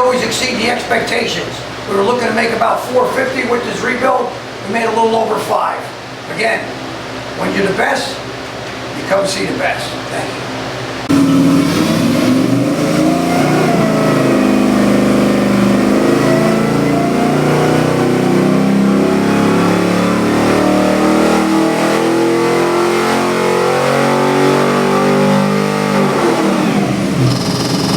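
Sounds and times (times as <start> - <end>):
car engine revving: 11.1 - 27.9.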